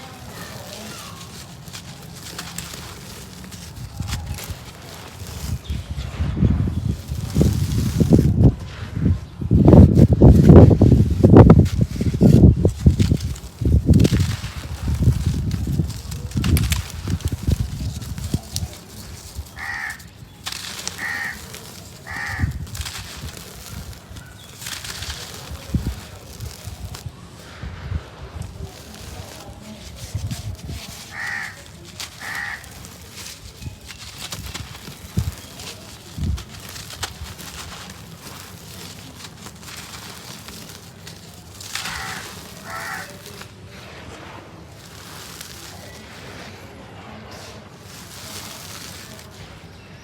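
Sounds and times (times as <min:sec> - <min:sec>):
dry cement being sifted: 0:00.0 - 0:50.0
short harsh calls: 0:14.0 - 0:25.9, 0:29.3 - 0:43.5
crow cawing: 0:19.5 - 0:20.1, 0:20.7 - 0:22.6, 0:31.1 - 0:32.8, 0:41.8 - 0:43.3.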